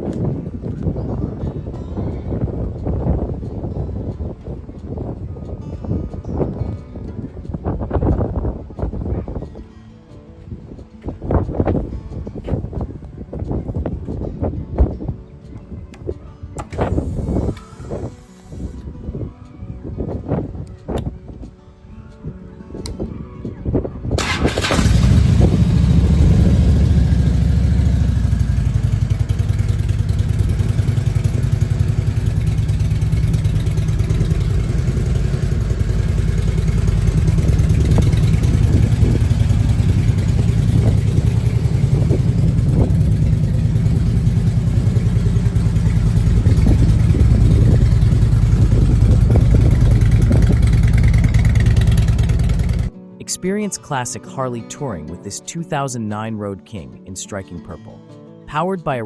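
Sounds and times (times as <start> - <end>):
motorcycle engine deep exhaust: 24.2 - 52.9.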